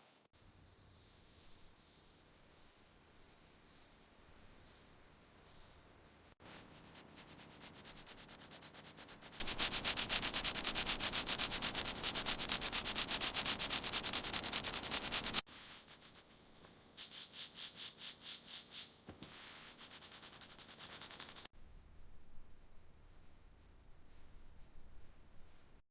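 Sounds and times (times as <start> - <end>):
sanding block rasping: 6.6 - 15.4.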